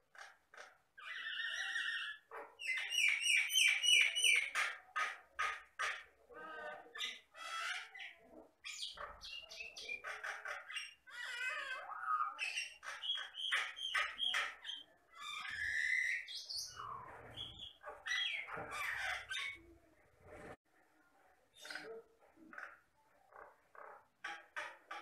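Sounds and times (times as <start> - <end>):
myna singing and squawking: 0.1 - 19.7.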